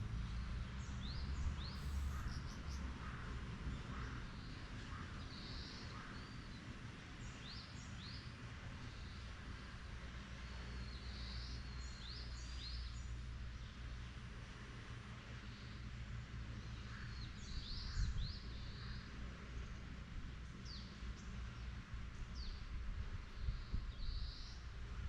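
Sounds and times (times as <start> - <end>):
low steady rumble: 0.0 - 25.0
small birds chirping: 0.8 - 3.3.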